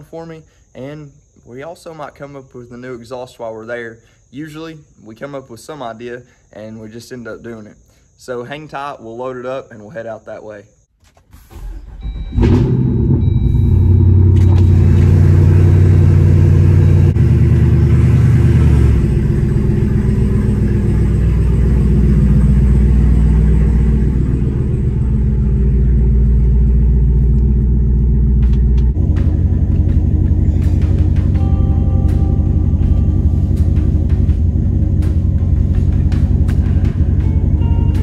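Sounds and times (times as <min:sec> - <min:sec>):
car engine starting and idling: 0:11.0 - 0:38.0.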